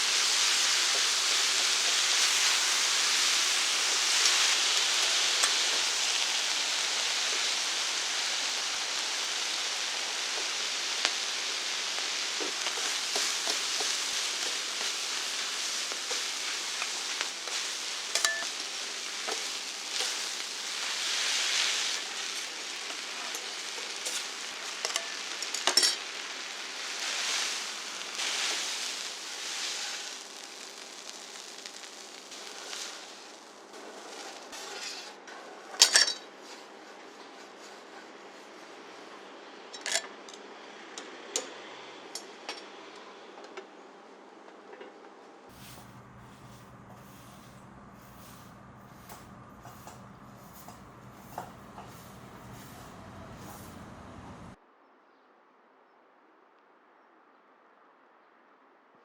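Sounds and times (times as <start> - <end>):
food sizzling on a griddle: 0.0 - 39.0, 45.5 - 54.6
metal utensils clinking: 16.8 - 26.2.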